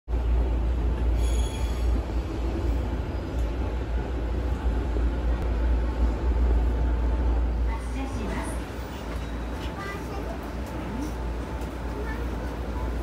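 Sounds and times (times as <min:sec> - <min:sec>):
train interior rumble: 0:00.1 - 0:13.0
faint high squeal: 0:01.2 - 0:02.0.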